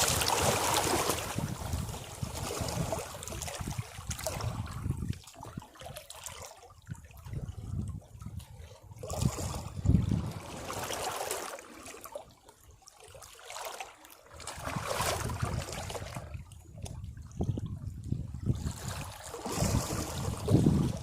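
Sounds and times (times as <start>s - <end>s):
waves breaking against rocks: 0.0s - 5.2s, 8.9s - 12.1s, 13.5s - 16.3s, 18.4s - 21.0s
water trickling and draining: 0.0s - 21.0s.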